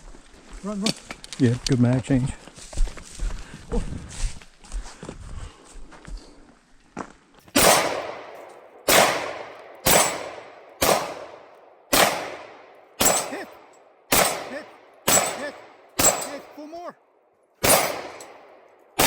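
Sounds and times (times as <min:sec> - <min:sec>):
gunshots with long echo: 0:07.6 - 0:16.8, 0:17.6 - 0:19.0.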